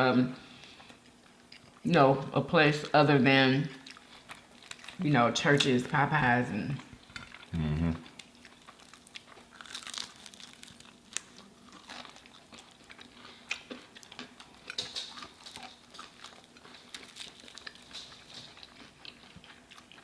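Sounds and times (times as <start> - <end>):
chewing crispy fried chicken: 3.7 - 5.0, 7.0 - 20.0.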